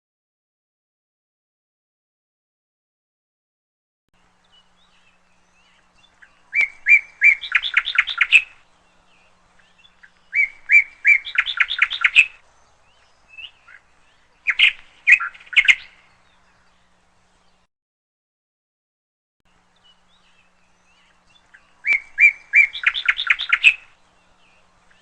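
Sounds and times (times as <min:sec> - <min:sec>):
canary chirping: 0:05.1 - 0:08.6, 0:09.6 - 0:12.4, 0:13.2 - 0:16.0, 0:20.4 - 0:24.0.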